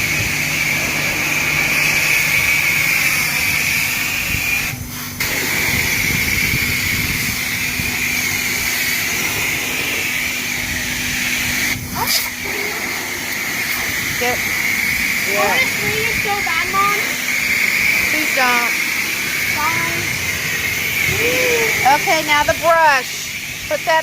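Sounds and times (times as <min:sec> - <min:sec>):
high-pressure spray wand hissing: 0:00.0 - 0:24.0.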